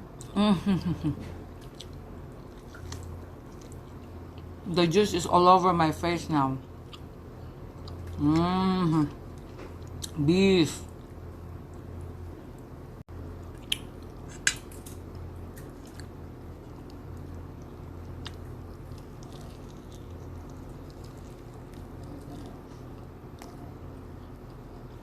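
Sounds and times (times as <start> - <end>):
steady low hum: 0.0 - 25.0
person chewing: 1.3 - 4.6, 6.6 - 10.2, 13.3 - 25.0.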